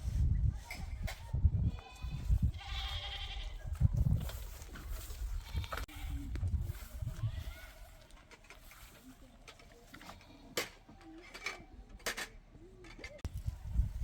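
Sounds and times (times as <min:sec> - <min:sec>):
livestock bleating: 0:01.7 - 0:03.6, 0:05.4 - 0:06.3.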